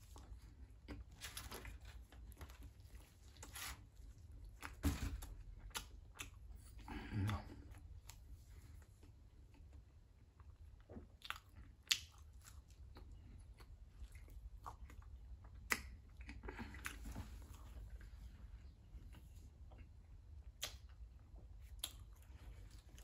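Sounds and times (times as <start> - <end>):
low steady hum: 0.0 - 23.0
wet chewing sounds: 5.4 - 23.0.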